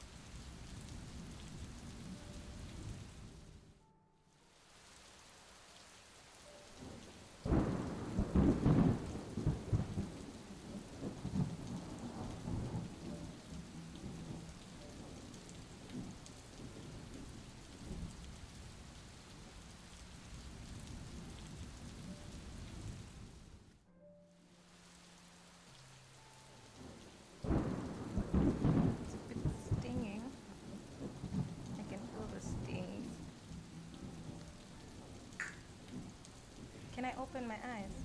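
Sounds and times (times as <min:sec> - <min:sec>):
rain falling: 0:00.0 - 0:38.0
thunder rumbling: 0:06.8 - 0:18.3, 0:26.8 - 0:38.0.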